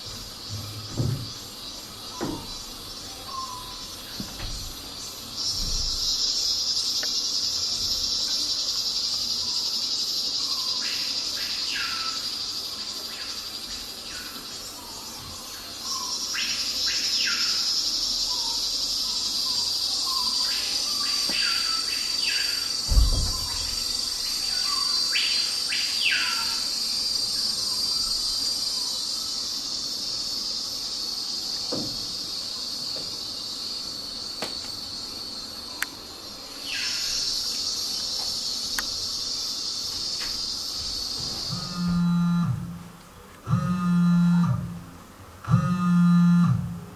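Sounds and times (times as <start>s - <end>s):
dull thump: 0.0s - 3.0s, 4.1s - 6.2s, 22.9s - 24.4s, 40.2s - 42.9s
crickets chirring: 0.0s - 46.9s.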